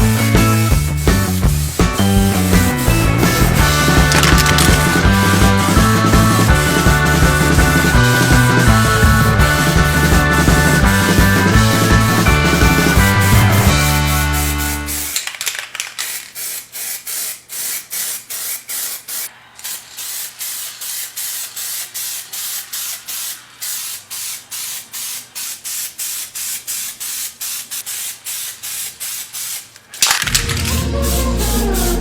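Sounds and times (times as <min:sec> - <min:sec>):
rhythmic scraping strokes: 0:00.5 - 0:15.1, 0:30.2 - 0:32.0.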